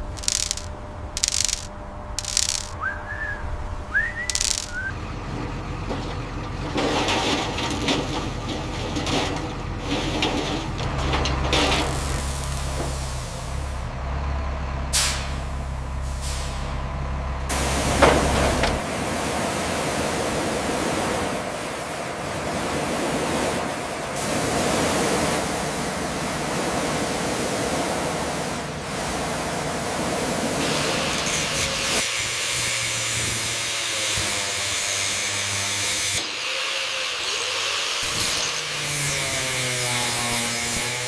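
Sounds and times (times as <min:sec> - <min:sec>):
hissing rushing spray noise: 0:11.8 - 0:13.8.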